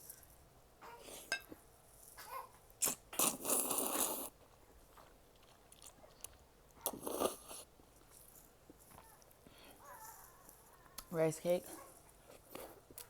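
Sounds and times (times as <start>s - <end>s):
mouth noise eating noodles: 2.8s - 7.7s.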